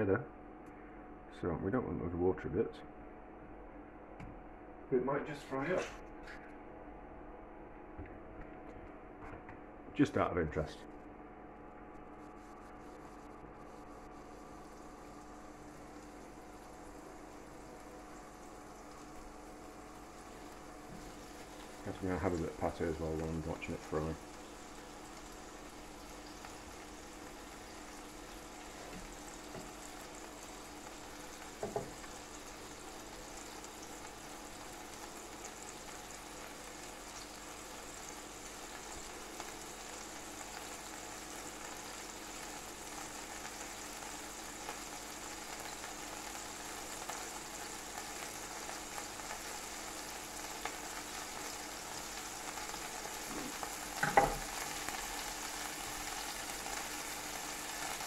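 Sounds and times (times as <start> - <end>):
food sizzling in a pan: 12.2 - 58.0
knocks on a pan: 31.6 - 32.0, 54.0 - 54.5.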